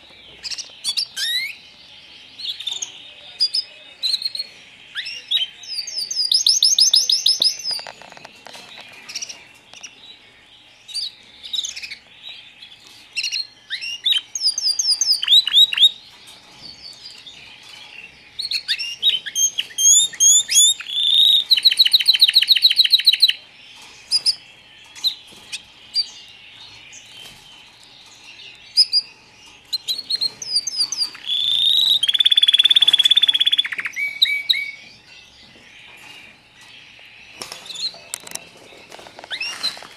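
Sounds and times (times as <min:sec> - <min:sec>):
canaries chirping: 0:00.0 - 0:39.9.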